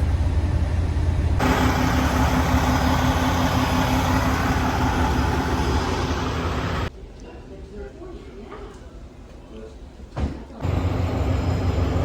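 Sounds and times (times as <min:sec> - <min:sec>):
diesel engine idling: 0:00.0 - 0:06.9, 0:10.6 - 0:12.0.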